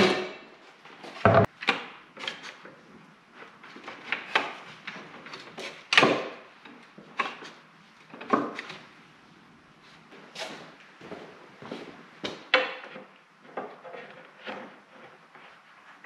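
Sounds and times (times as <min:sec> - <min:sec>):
tools knocking on workbench: 0:01.3 - 0:01.5.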